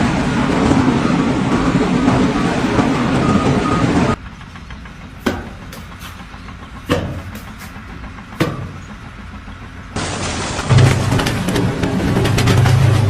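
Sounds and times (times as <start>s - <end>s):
low engine rumble: 0.0s - 13.0s
sharp knocks: 5.2s - 6.2s, 6.8s - 9.0s.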